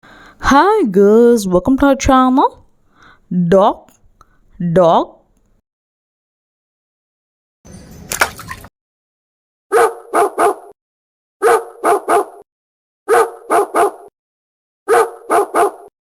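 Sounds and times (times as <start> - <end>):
dog barking: 9.7 - 10.8, 11.4 - 12.4, 13.1 - 14.1, 14.9 - 15.9.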